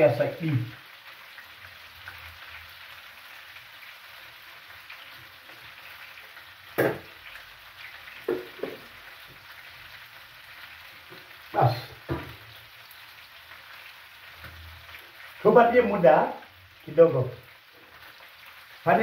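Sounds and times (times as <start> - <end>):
food frying in oil: 0.0 - 19.0
sharp knocks: 6.8 - 7.1.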